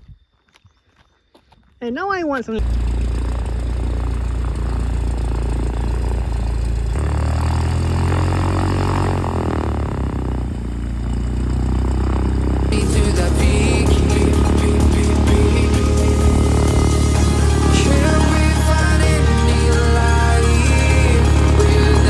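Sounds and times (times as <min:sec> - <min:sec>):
aircraft engine and propeller drone: 0:02.6 - 0:22.0
electronic music: 0:12.9 - 0:22.0.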